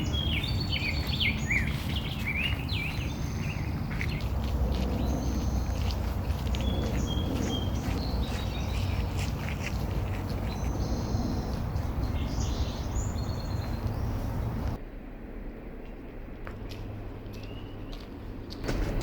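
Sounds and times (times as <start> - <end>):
small birds chirping: 0.0 - 14.8
outdoor rushing background: 0.0 - 19.0.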